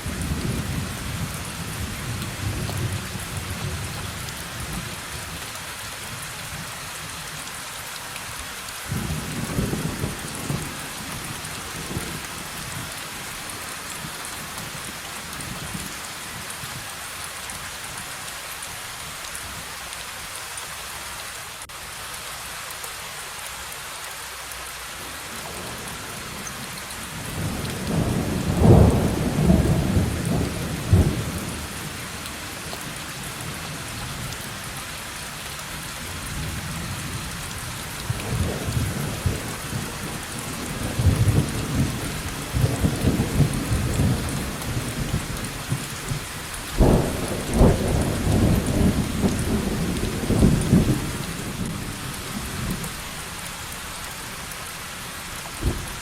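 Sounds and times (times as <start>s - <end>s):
heavy rain: 0.0s - 56.0s
thunder rumbling: 27.4s - 31.9s, 46.8s - 52.8s.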